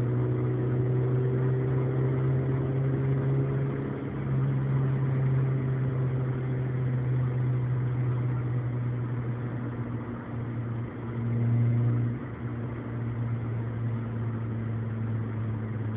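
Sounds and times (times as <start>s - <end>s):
car exhaust droning inside cabin: 0.0s - 15.9s.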